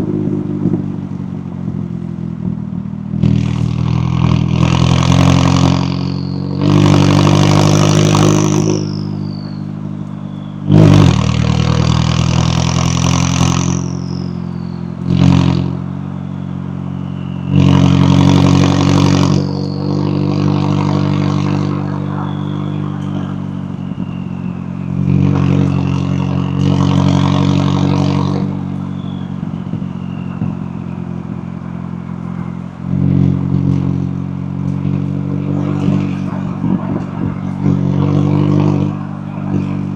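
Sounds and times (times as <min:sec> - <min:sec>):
car exhaust accelerating hard: 0:00.0 - 0:39.9.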